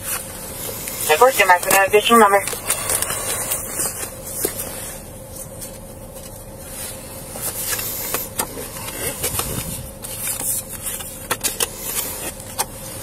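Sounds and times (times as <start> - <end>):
car engine idling: 0.0 - 13.0
faint constant tone: 0.2 - 8.8.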